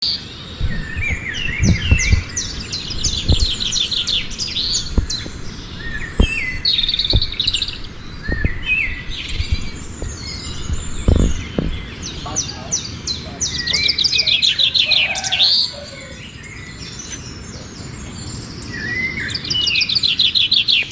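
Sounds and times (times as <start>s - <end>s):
small birds chirping: 0.0s - 20.9s
dull low thumps: 0.6s - 12.6s.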